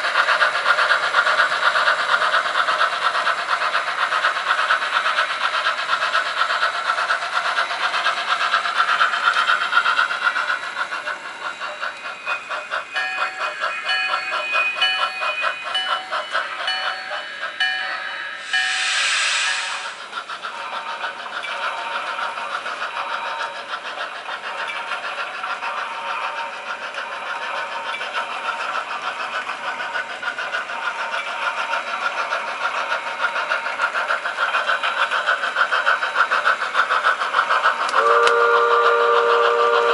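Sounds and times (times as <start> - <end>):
rapid steam chuffing: 0.0 - 39.9
steam hiss: 0.0 - 39.9
train whistle: 37.9 - 39.9.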